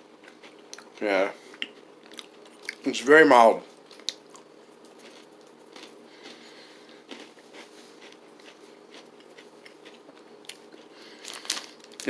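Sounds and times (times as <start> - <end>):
steady low hum: 0.0 - 12.0
crunchy chewing: 3.7 - 12.0.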